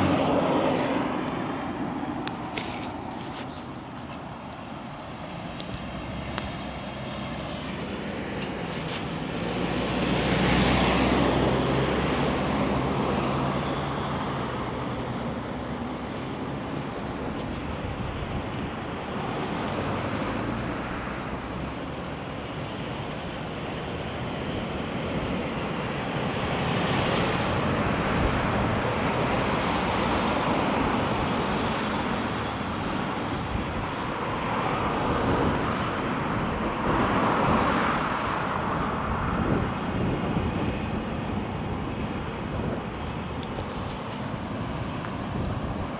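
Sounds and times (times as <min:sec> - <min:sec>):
vehicle passing loudly: 0:00.0 - 0:02.3, 0:09.3 - 0:14.9
road traffic: 0:00.0 - 0:45.9.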